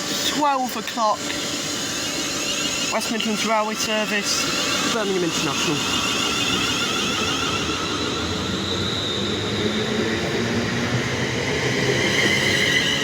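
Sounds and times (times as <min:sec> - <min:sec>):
electric train motors whining: 0:00.0 - 0:13.0
train wheels rumbling on rails: 0:04.5 - 0:13.0.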